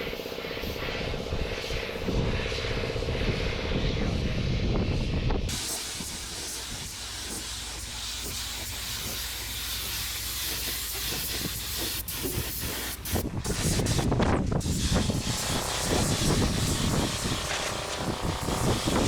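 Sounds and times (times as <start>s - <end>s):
spraying hiss: 5.5s - 19.0s.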